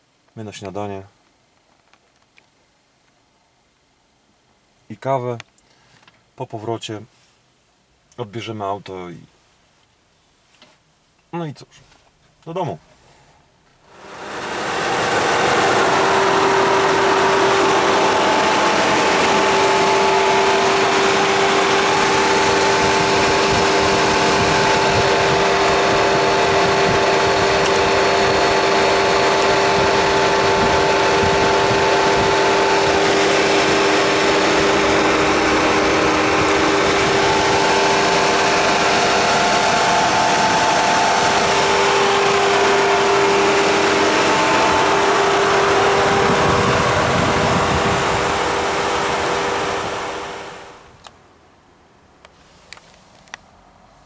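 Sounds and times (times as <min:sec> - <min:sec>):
car engine idling: 0:13.8 - 0:51.0.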